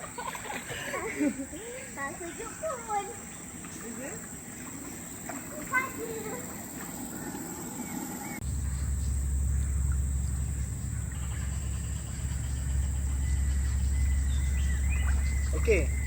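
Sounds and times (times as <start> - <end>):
insects droning: 0.0 - 16.0
loud low rumble: 7.1 - 16.0.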